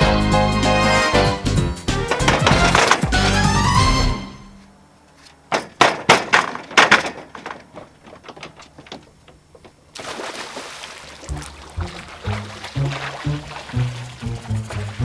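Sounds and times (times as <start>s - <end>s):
sharp knocks: 0.0s - 4.3s, 5.5s - 9.8s
music: 0.0s - 4.6s, 11.3s - 15.0s.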